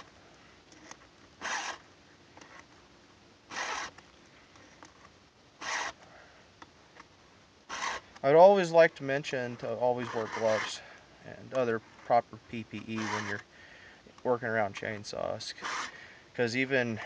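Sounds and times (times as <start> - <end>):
file rasping on saw chain: 1.4 - 1.8, 3.5 - 3.9, 5.6 - 6.0, 7.7 - 8.0, 10.0 - 10.8, 13.0 - 13.4, 15.5 - 16.0.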